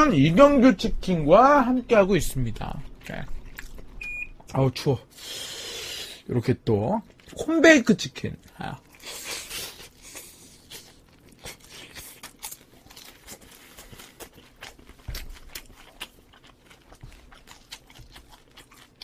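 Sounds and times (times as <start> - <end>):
crunchy chewing: 2.7 - 4.0, 8.4 - 19.0.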